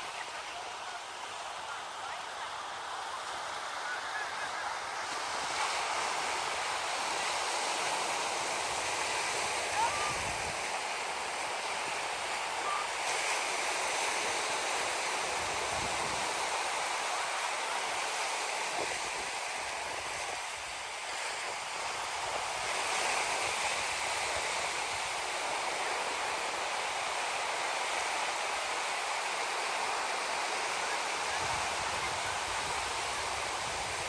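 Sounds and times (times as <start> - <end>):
ocean surf washing onto beach: 0.0 - 34.0.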